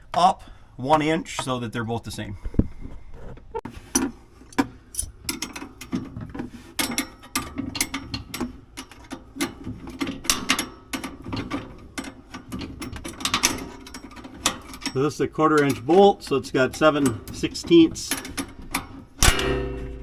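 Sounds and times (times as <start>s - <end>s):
hand tools clicking on metal: 4.5s - 6.0s, 6.8s - 20.0s.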